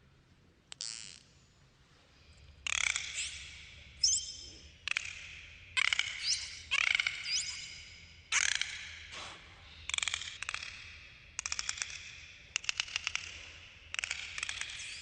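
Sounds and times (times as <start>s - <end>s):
dolphin whistles: 5.8s - 8.6s.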